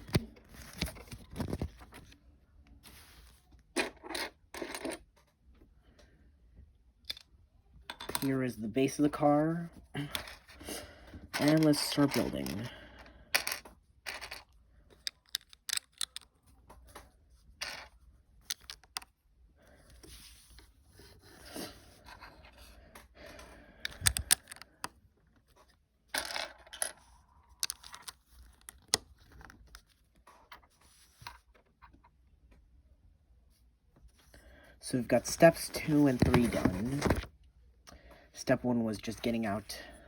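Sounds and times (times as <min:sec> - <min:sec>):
plastic bricks clicking: 0:13.4 - 0:16.4, 0:17.6 - 0:19.1, 0:23.8 - 0:24.9, 0:27.6 - 0:29.0
plastic pieces rattling: 0:13.4 - 0:16.4.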